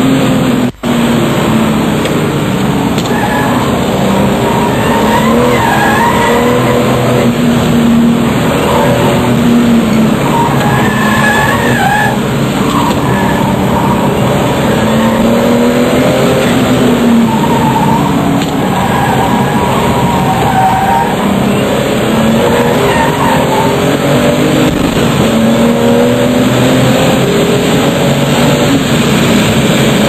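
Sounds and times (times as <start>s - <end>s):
sports car engine running hard: 0.0s - 30.0s
tyre squeals: 3.0s - 7.3s, 10.0s - 21.5s, 22.2s - 24.3s.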